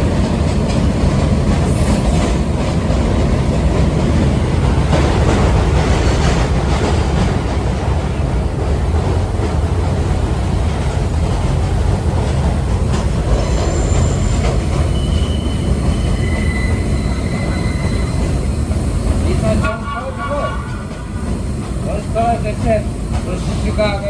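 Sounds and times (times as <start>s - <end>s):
subway train rumbling on rails: 0.0s - 24.0s
thin high squeals: 13.6s - 18.2s.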